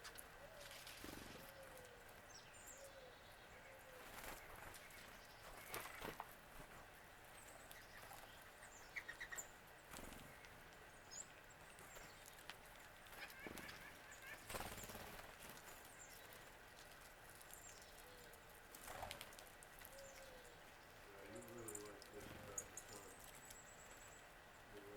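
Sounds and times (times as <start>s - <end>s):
bird chirps: 19.9s - 24.9s.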